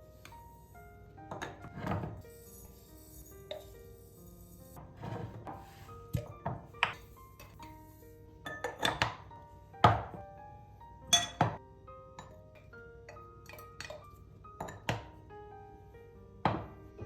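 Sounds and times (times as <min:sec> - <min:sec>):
soft background music: 0:00.0 - 0:17.0
jars clinking and knocking: 0:12.2 - 0:15.1.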